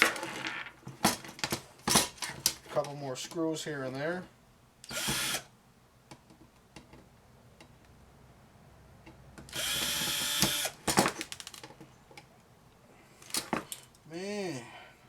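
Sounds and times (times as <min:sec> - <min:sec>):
power drill spinning: 0:04.9 - 0:05.5, 0:09.5 - 0:10.8.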